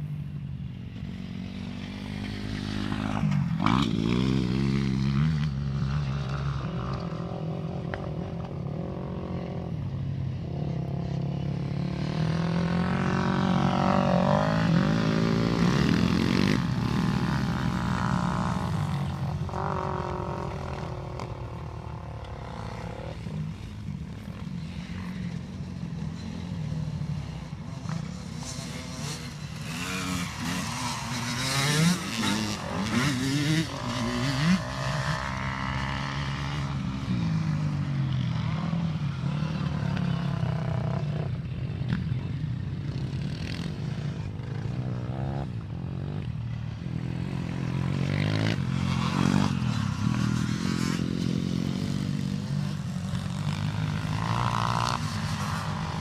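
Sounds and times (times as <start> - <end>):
dirt bikes revving: 0.1 - 56.0.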